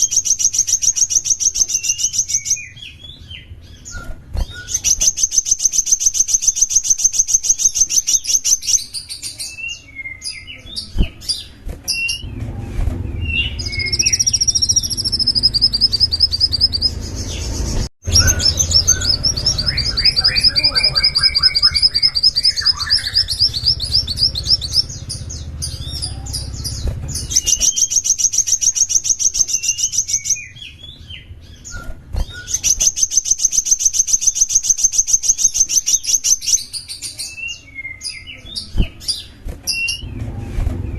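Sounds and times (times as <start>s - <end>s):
songbird trilling and chirping: 0.0s - 12.4s, 13.1s - 40.2s
low hum: 11.8s - 27.6s.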